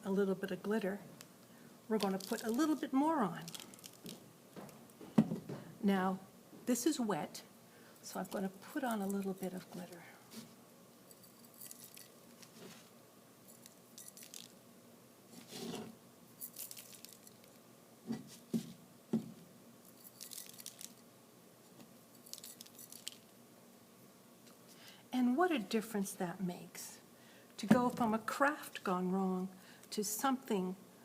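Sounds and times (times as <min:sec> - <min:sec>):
glitter container shaking rattles: 0:02.0 - 0:02.8, 0:03.4 - 0:04.2, 0:11.1 - 0:12.6, 0:13.5 - 0:14.6, 0:16.4 - 0:17.6, 0:19.8 - 0:21.0, 0:22.1 - 0:23.3.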